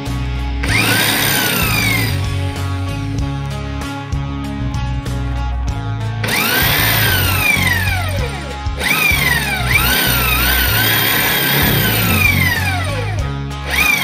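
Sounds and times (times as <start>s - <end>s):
music with steady beat: 0.0s - 14.0s
power tool whine: 0.6s - 3.1s, 6.2s - 14.0s.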